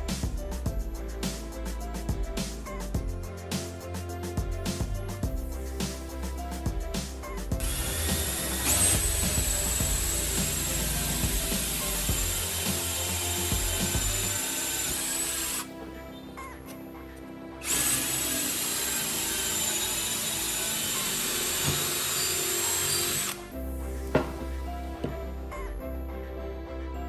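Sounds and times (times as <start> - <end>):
background music: 0.0 - 27.0
power tool high whine: 7.6 - 15.7, 17.6 - 23.5.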